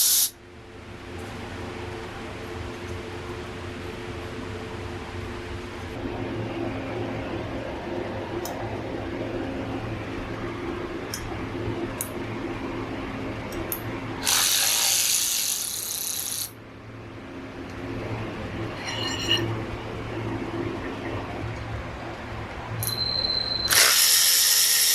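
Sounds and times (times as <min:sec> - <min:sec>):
steady hiss: 0:00.0 - 0:00.3
ringing metal clink: 0:18.8 - 0:19.5.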